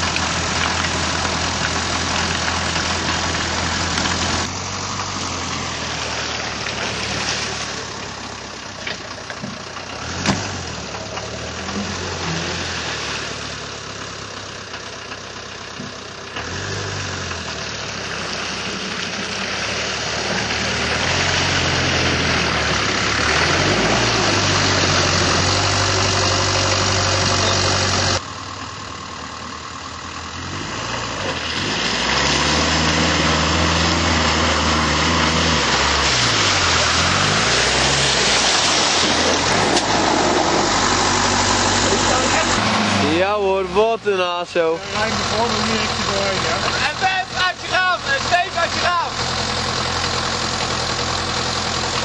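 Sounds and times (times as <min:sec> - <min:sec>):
car engine revving: 0:00.0 - 0:08.6, 0:09.4 - 0:14.2, 0:16.3 - 0:28.2, 0:30.2 - 0:52.0.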